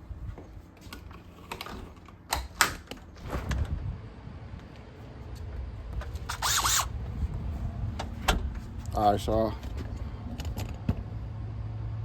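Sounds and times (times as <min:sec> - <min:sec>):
low rumble of movement: 0:02.8 - 0:12.0.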